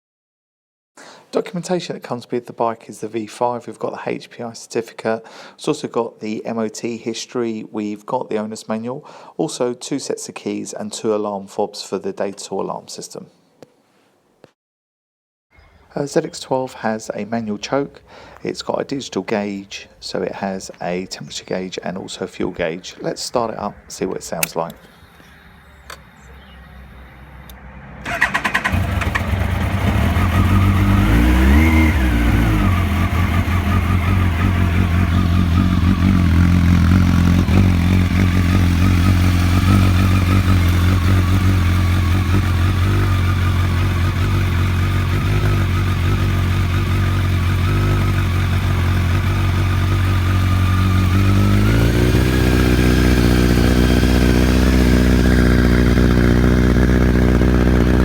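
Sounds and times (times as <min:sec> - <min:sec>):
motorcycle engine starting and idling: 0:24.4 - 0:58.0.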